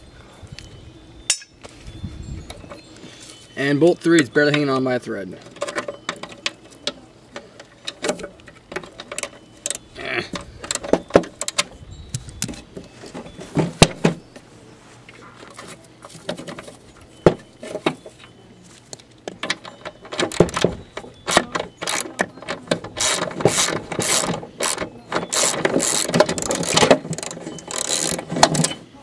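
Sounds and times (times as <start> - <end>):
ratchet wrench clicking: 21.2 - 22.2, 23.0 - 28.7.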